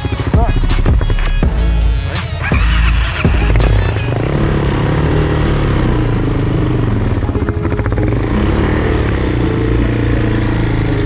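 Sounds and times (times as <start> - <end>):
off-road vehicle engine running: 0.0 - 11.0.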